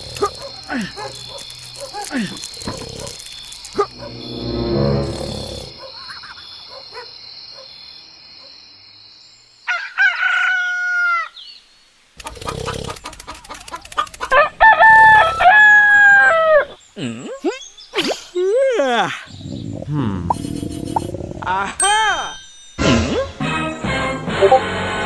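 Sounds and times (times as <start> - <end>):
rooster crowing: 9.7 - 11.3, 14.3 - 16.7.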